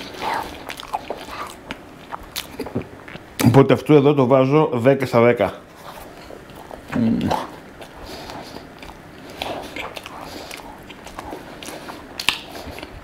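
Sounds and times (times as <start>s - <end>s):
person chewing: 0.0s - 3.5s, 5.8s - 13.0s.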